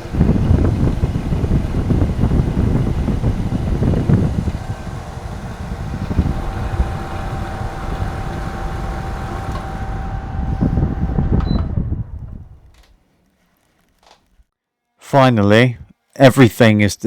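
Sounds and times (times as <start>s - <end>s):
steady hum: 0.0s - 13.0s
wind buffeting microphone: 0.0s - 13.0s.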